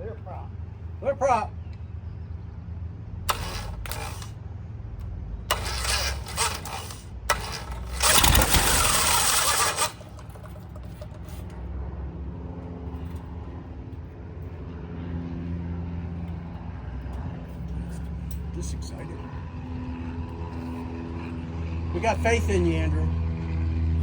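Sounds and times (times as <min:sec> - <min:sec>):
aircraft engine starter cranking: 0:03.3 - 0:04.3, 0:05.5 - 0:11.6.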